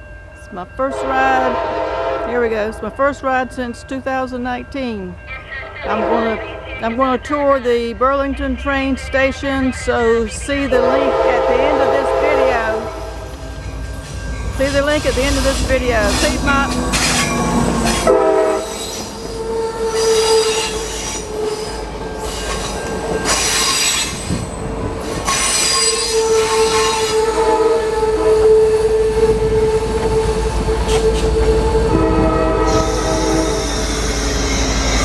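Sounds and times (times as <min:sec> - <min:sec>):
rumble and hiss of train cars: 0:00.0 - 0:35.0
train brakes squealing: 0:08.5 - 0:28.8, 0:32.1 - 0:35.0.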